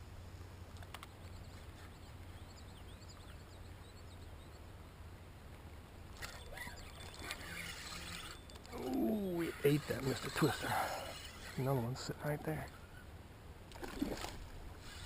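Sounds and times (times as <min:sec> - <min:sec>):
faint bird chirps: 0:00.9 - 0:04.9, 0:06.2 - 0:13.2.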